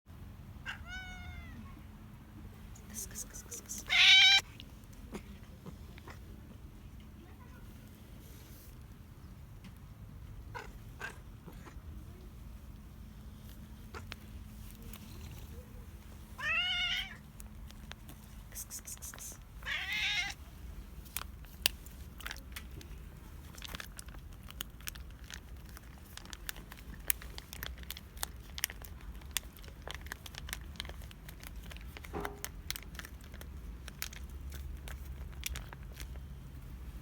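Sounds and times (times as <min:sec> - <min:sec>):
cat meowing: 0:00.6 - 0:01.8, 0:03.6 - 0:04.4, 0:16.4 - 0:17.2, 0:19.6 - 0:20.4.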